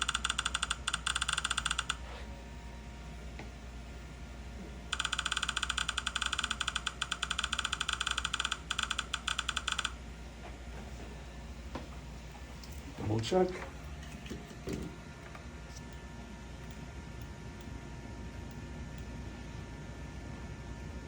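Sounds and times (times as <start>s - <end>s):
rapid even clicking: 0.0s - 2.0s, 4.9s - 10.0s
low steady hum: 0.0s - 21.0s.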